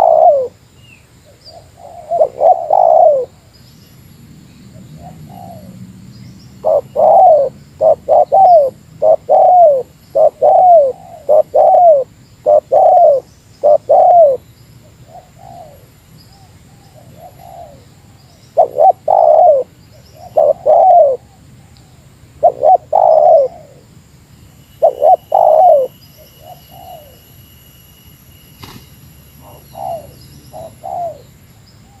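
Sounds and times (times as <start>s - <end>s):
dove cooing: 0.0s - 0.6s, 1.3s - 3.5s, 4.9s - 5.8s, 6.6s - 14.4s, 15.0s - 23.9s, 24.8s - 27.2s, 29.4s - 32.0s.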